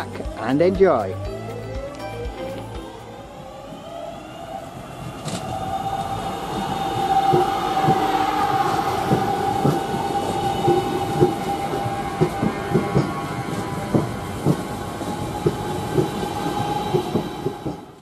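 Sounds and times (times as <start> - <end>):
train whine: 0.0 - 18.0
wheels clicking over rail joints: 0.0 - 18.0.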